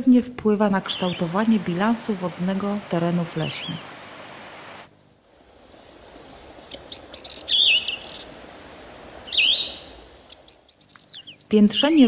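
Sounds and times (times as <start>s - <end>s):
steady background hiss: 0.0s - 12.0s
songbird chirping: 0.5s - 12.0s.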